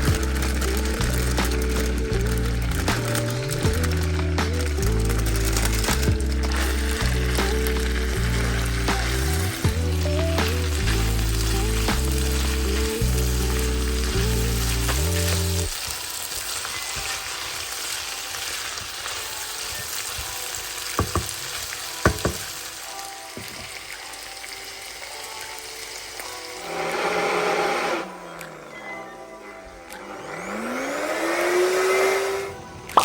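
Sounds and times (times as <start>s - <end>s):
background music with bass line: 0.0s - 15.8s
food sizzling in a pan: 0.0s - 28.1s.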